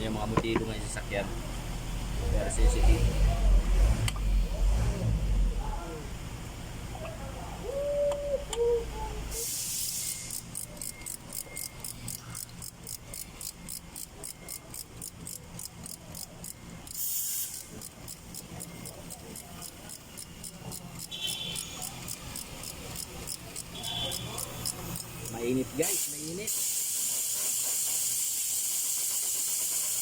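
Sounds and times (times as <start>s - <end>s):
car engine running: 0.0s - 6.9s
high-pitched ticking: 10.1s - 26.4s.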